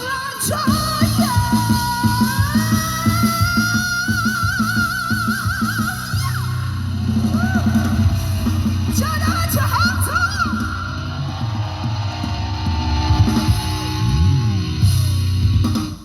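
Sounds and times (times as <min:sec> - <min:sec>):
woman singing: 0:00.0 - 0:11.0
live rock band: 0:00.0 - 0:16.0.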